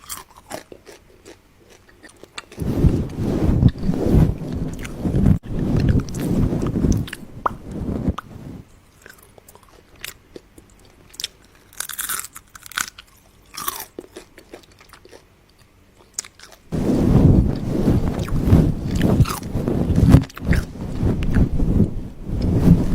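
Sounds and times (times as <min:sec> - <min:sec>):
crunching and chewing food: 0:00.0 - 0:03.9, 0:04.7 - 0:07.3, 0:08.9 - 0:16.7, 0:18.2 - 0:21.5.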